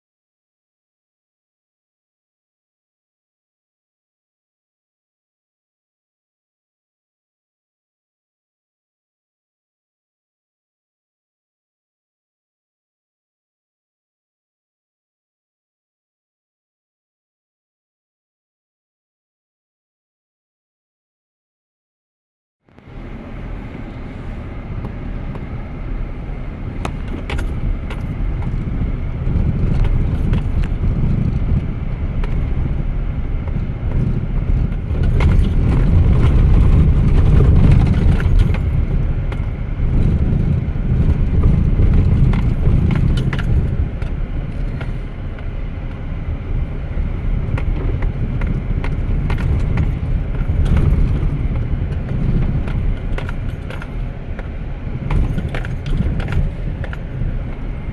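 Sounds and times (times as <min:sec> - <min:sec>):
truck engine and tyres rumbling: 0:22.7 - 0:57.9
loose things rattling in cab: 0:22.8 - 0:57.9.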